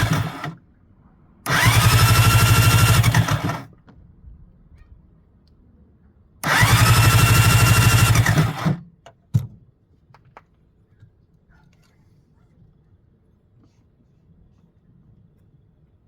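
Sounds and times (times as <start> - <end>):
electric starter cranking engine: 0.0 - 0.6, 1.4 - 3.7, 6.4 - 8.8.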